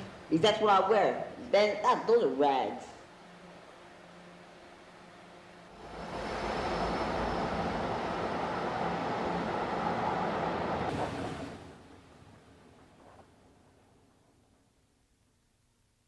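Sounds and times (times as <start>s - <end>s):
subway train rushing past: 0.0s - 1.3s, 3.0s - 13.0s.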